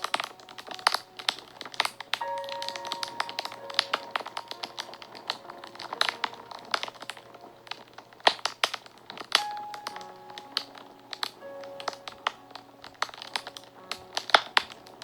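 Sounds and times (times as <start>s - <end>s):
fire crackling and popping: 0.0s - 15.0s
soft background music: 0.0s - 15.0s.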